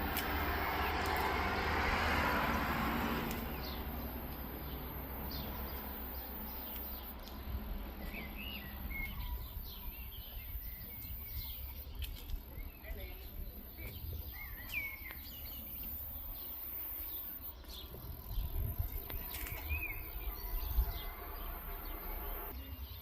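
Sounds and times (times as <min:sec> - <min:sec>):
small birds chirping: 0:02.6 - 0:23.0
steady low rumble: 0:17.8 - 0:22.5.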